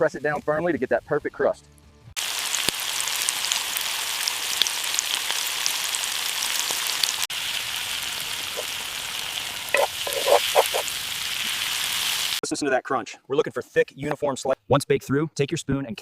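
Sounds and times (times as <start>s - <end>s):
meat and onions sizzling in a pan: 2.2s - 12.4s.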